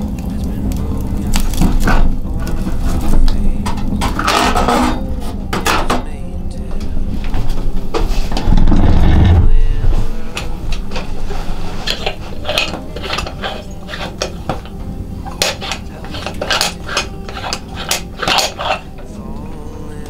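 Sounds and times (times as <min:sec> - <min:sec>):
dishes and utensils clinking: 0:01.6 - 0:06.2, 0:10.4 - 0:19.1.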